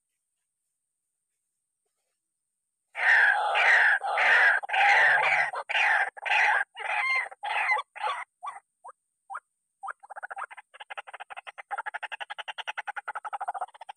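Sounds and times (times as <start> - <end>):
bird croaking calls: 3.0 - 8.6.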